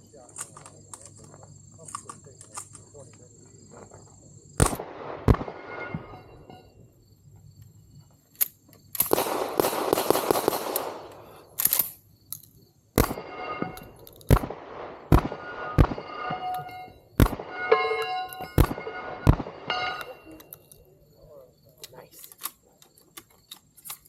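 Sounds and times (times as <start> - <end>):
shotgun shots: 4.6 - 6.4, 9.0 - 11.7, 13.0 - 20.4
metallic ringing: 5.5 - 6.8, 13.0 - 14.2, 15.0 - 20.6.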